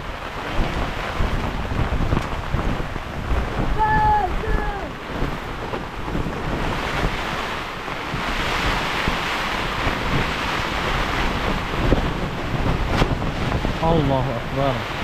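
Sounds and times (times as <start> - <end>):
rain: 0.0 - 15.0
storm wind rushing: 0.0 - 15.0
wind buffeting microphone: 0.0 - 15.0.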